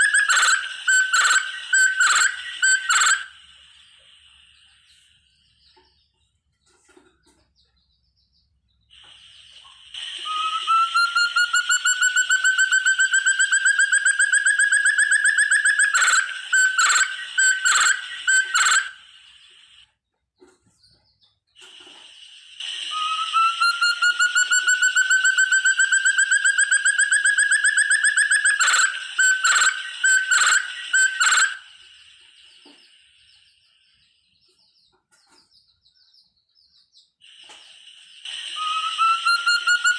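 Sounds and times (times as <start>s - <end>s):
partridge pulsed whistles: 0.0s - 5.5s, 8.9s - 19.9s, 21.6s - 34.3s, 37.2s - 39.9s.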